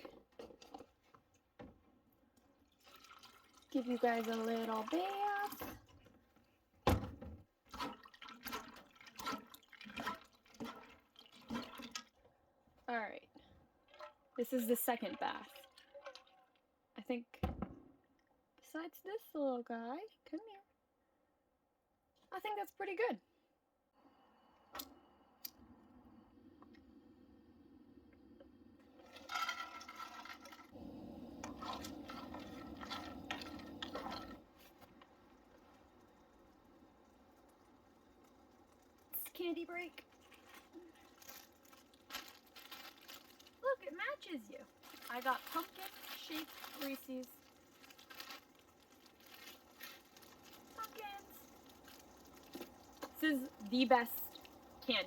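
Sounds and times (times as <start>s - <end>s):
water sloshing and splashing: 0.0s - 1.6s, 2.4s - 13.0s, 13.7s - 16.7s, 28.8s - 55.0s
objects rustling and scraping: 29.0s - 30.8s, 31.4s - 35.1s, 44.7s - 53.4s.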